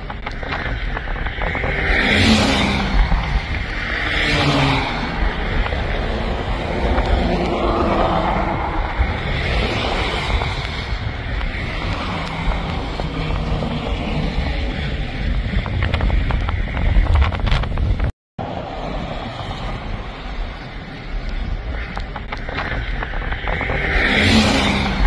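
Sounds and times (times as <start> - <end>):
steady low rumble: 0.0 - 25.0
wind buffeting microphone: 0.0 - 25.0.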